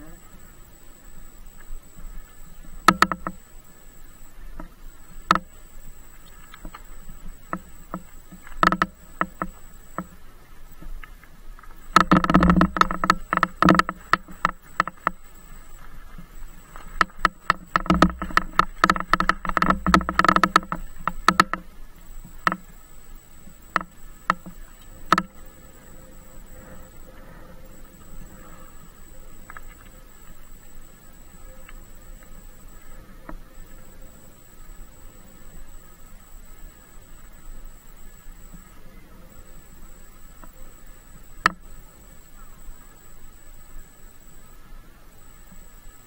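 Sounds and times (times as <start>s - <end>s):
bicycle rattling and knocking: 12.0s - 15.2s, 17.0s - 21.6s.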